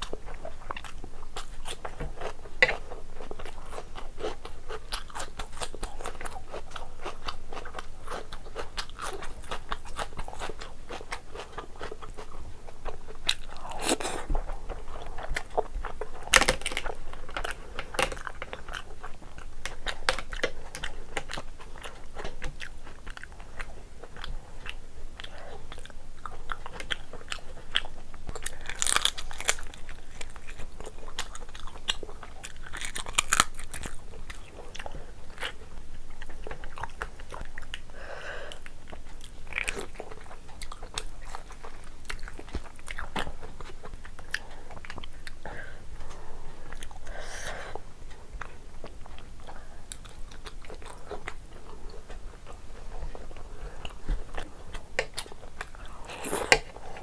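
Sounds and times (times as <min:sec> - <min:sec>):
wet chewing with crunchy bites: 0:00.0 - 0:37.9, 0:38.5 - 0:57.0.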